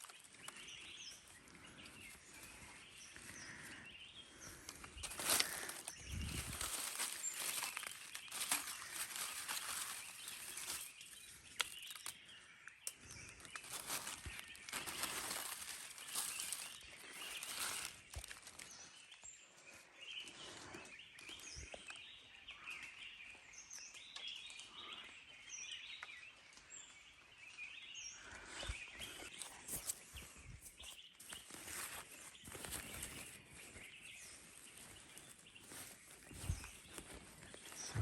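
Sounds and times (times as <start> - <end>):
rustling: 4.5 - 12.1, 13.3 - 18.7.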